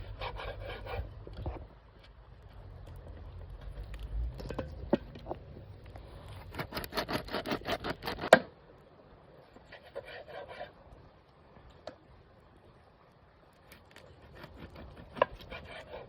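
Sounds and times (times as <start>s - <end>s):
cooking scrapes and knocks: 3.8s - 5.4s.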